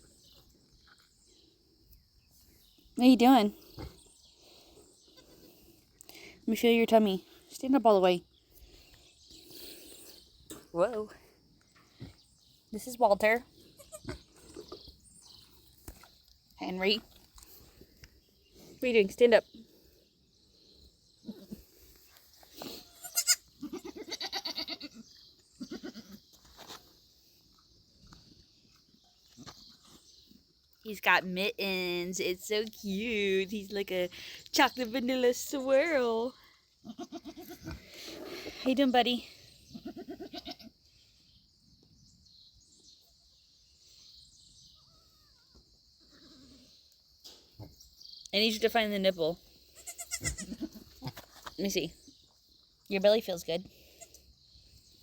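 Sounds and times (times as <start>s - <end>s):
goats bleating: 22.8s - 25.0s, 36.8s - 37.8s, 39.8s - 40.7s, 49.8s - 50.8s
faint bird chirps: 40.9s - 47.0s.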